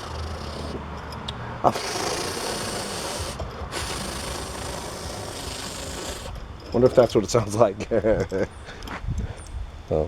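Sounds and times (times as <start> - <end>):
toy wheels rasping rattle: 0.0 - 8.9.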